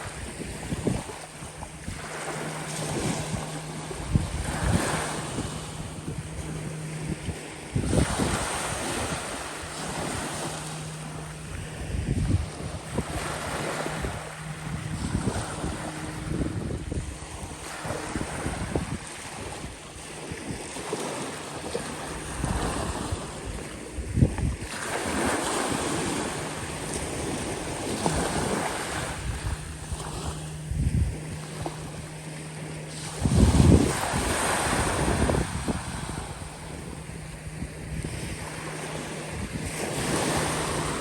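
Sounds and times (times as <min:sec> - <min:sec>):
faint low hum: 0:00.0 - 0:24.6
waves washing onto sand: 0:00.0 - 0:41.0
wind buffeting microphone: 0:00.0 - 0:41.0.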